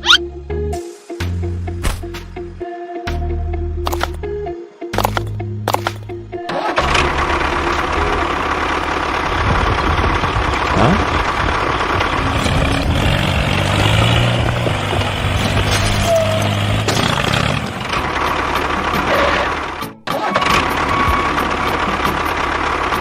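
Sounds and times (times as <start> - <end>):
small tractor engine running: 5.0 - 23.0.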